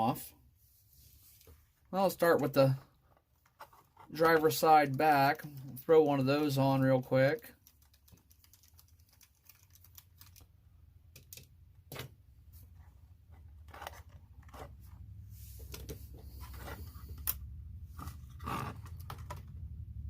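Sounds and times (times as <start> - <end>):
hands handling small parts: 7.4 - 12.1
low steady hum: 9.7 - 20.0.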